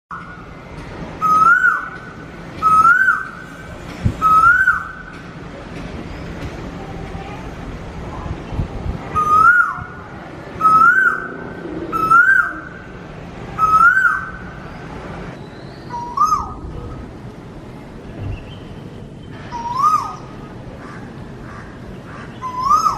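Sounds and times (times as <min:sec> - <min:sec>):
bird calling loudly: 0:01.2 - 0:02.0, 0:02.6 - 0:03.4, 0:04.2 - 0:05.1, 0:09.1 - 0:10.0, 0:10.6 - 0:12.9, 0:13.6 - 0:14.4, 0:15.6 - 0:16.6, 0:19.5 - 0:22.9.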